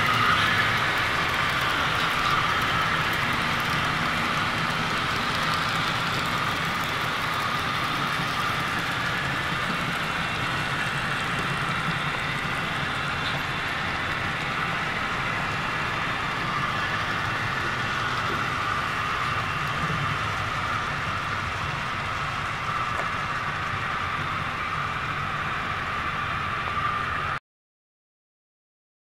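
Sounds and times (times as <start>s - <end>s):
model train motor whirring: 0.0s - 27.4s
wheels rolling on rails: 0.0s - 27.4s.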